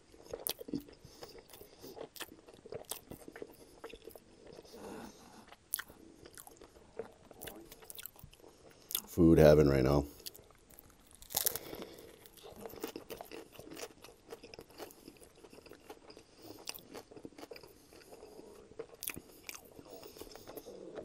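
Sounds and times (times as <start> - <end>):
close-up crunchy chewing: 0.0 - 9.2, 10.1 - 21.0
crunchy bite into sandwich: 10.2 - 18.2.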